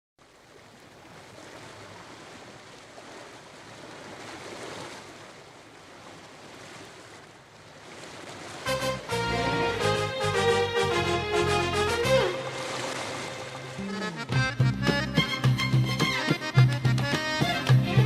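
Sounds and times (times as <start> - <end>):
sea waves washing in: 0.3 - 14.3.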